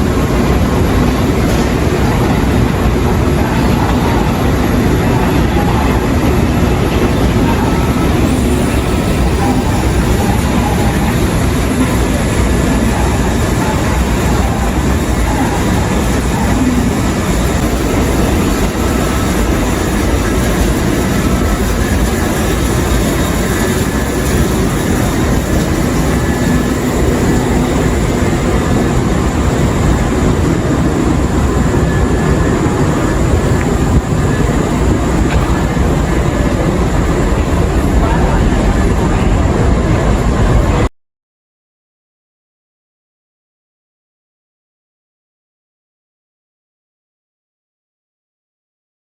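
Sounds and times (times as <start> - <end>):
train rumbling on rails: 0.0 - 40.9.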